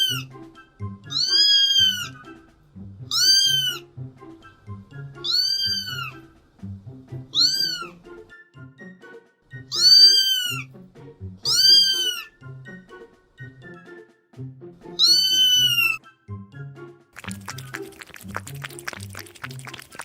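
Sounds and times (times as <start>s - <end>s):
kitten meowing: 0.0s - 0.3s, 1.1s - 2.2s, 3.1s - 3.8s, 5.2s - 6.2s, 7.3s - 8.0s, 9.7s - 10.7s, 11.4s - 12.3s, 15.0s - 16.0s
background music: 0.0s - 20.0s.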